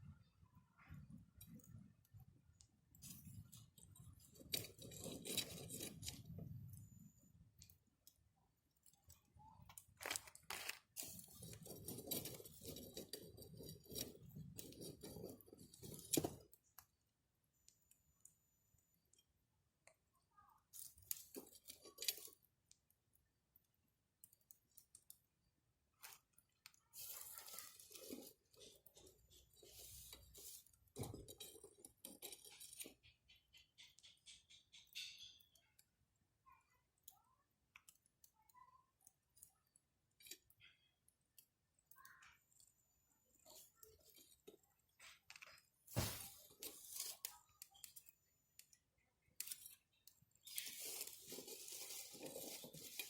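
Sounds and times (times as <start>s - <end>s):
rustling and crunching: 0.9s - 7.8s, 9.1s - 16.9s, 26.0s - 33.1s, 43.4s - 48.1s, 49.2s - 53.0s.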